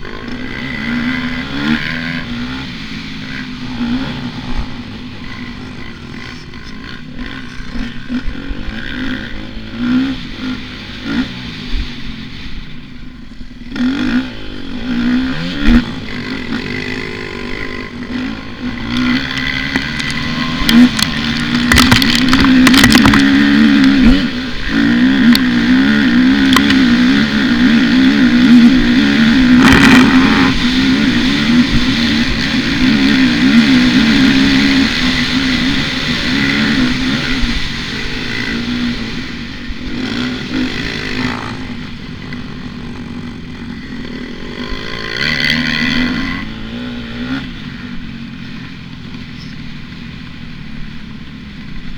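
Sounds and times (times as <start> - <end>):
dirt bike engine revving: 0.0 - 51.9
sharp clattering knocks: 19.6 - 24.2.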